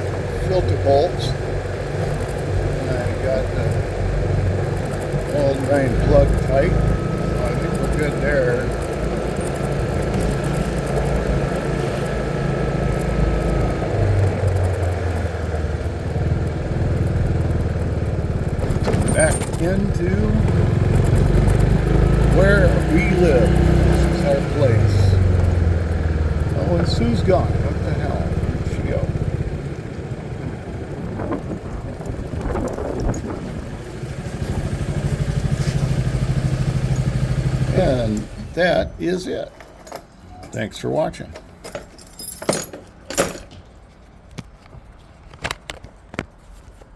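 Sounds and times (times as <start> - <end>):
vehicle engine running: 0.0 - 39.2
wind buffeting microphone: 28.5 - 35.0.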